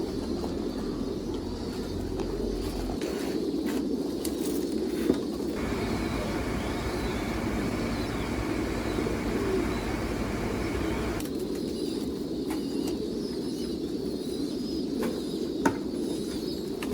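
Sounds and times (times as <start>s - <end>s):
pigeons cooing: 5.6s - 11.2s
steady noise: 5.6s - 11.2s.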